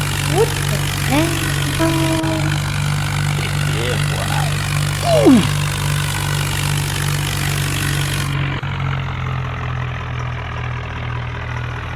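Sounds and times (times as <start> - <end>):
tractor engine idling: 0.0 - 11.9.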